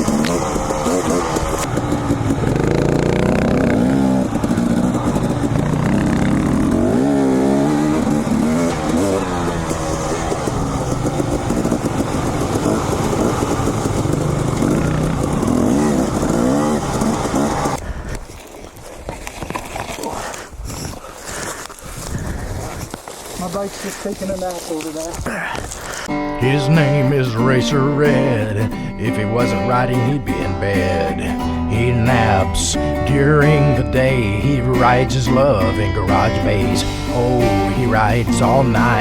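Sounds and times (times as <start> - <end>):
dirt bike engine revving: 0.0 - 17.9, 25.9 - 39.0
background noise: 0.0 - 39.0.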